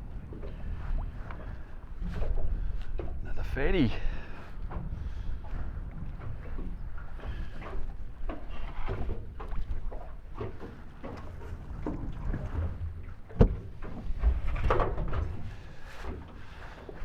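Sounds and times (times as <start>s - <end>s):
wind and water rumble: 0.0s - 17.0s
knocks and clatter of handling: 10.4s - 16.2s.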